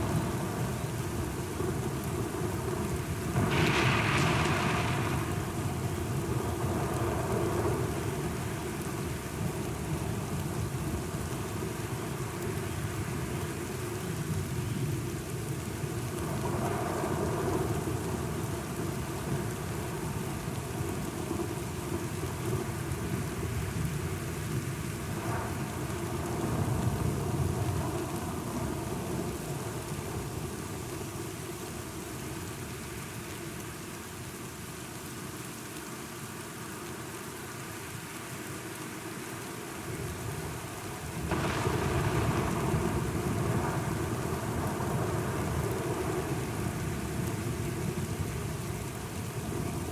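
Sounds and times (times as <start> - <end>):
low rolling thunder: 0.0 - 8.3, 41.2 - 48.6
steady rain: 0.0 - 49.9.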